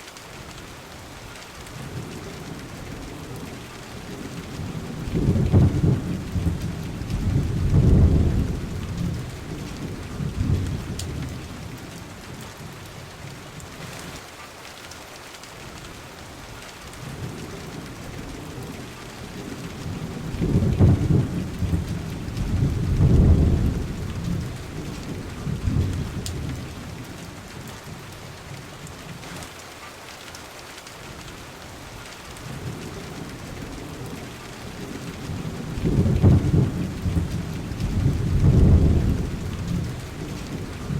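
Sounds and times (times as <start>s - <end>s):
steady rain: 0.0s - 40.9s
rolling thunder: 4.0s - 11.7s, 17.1s - 27.0s, 32.4s - 40.9s.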